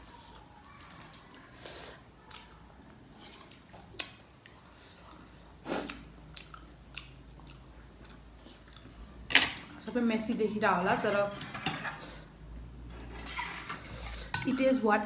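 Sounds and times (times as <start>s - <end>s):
person chewing food: 0.2s - 9.2s.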